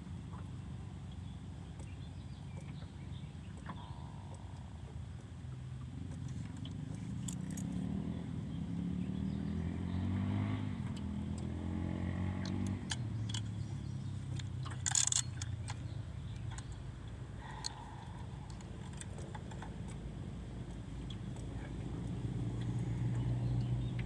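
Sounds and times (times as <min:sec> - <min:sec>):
engine passing by: 0:07.2 - 0:15.4, 0:20.3 - 0:24.0
short sharp rattle: 0:12.5 - 0:16.8.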